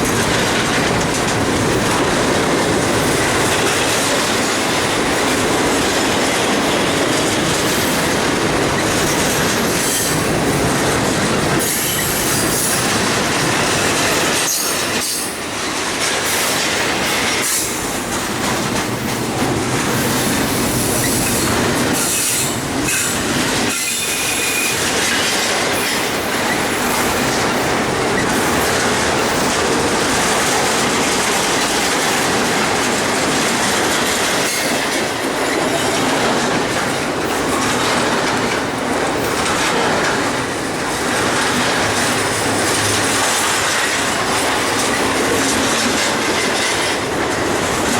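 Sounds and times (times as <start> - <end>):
wheels clacking over rail joints: 0.0 - 47.9
high-pitched wheel squeal: 23.7 - 24.8.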